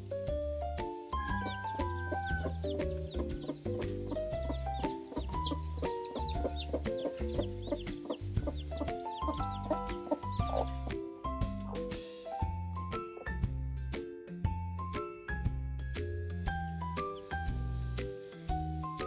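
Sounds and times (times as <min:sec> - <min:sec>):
background music with steady bass: 0:00.0 - 0:19.0
chickens calling: 0:01.2 - 0:10.9.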